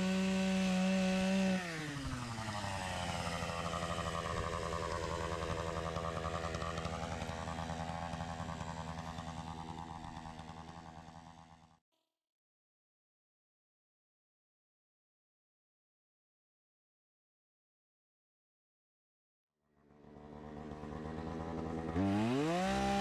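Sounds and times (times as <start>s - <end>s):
chainsaw revving and idling: 0.0s - 11.8s, 19.8s - 23.0s.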